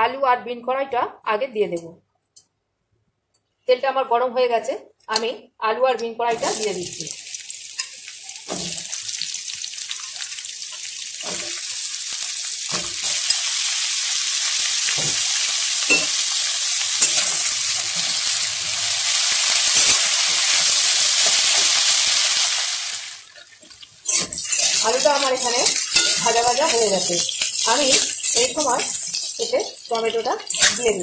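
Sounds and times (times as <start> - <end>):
vegetables sizzling in oil: 6.3 - 31.0.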